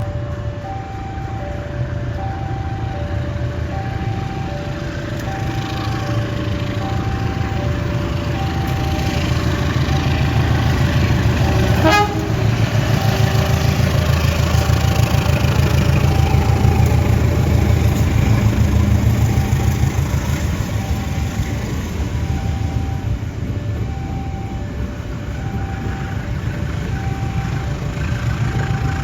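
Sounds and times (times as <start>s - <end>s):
level crossing alarm two notes: 0.0s - 17.0s, 18.2s - 28.0s
low train rumble: 0.0s - 29.0s
short horn toot: 11.8s - 12.4s.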